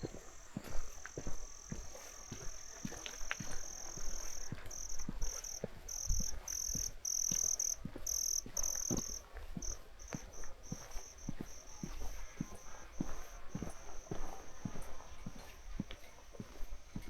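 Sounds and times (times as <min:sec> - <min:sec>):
insect buzzing chirp: 0:00.0 - 0:14.6.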